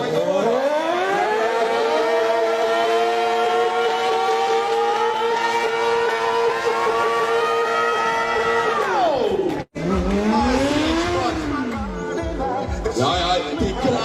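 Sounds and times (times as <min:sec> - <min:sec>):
motorcycle engine high revs: 0:00.0 - 0:08.3, 0:09.8 - 0:12.4.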